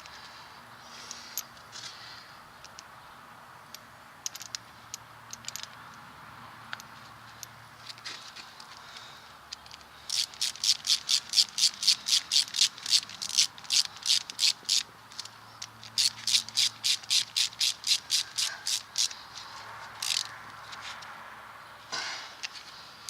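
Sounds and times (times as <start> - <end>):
ratchet wrench clicking: 3.7 - 6.0, 9.5 - 19.2, 19.9 - 20.4.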